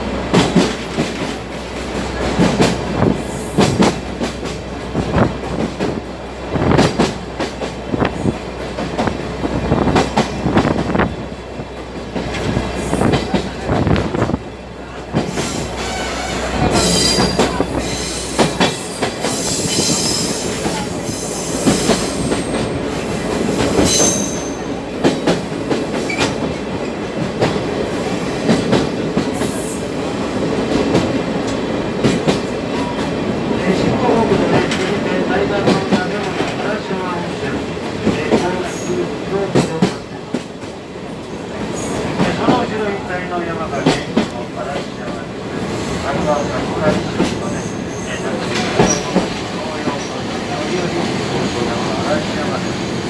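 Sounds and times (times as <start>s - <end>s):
train wheels clattering over rails: 0.0s - 53.0s
high-pitched wheel squeal: 15.8s - 22.5s.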